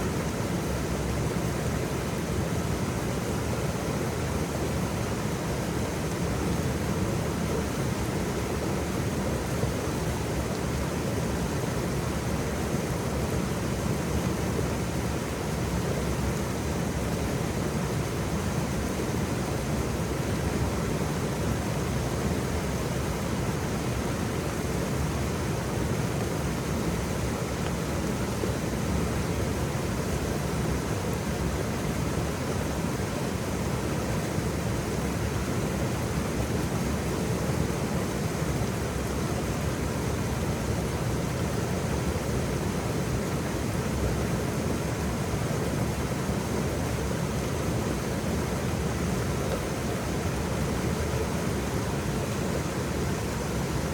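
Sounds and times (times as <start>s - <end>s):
waterfall rushing: 21.2s - 53.9s.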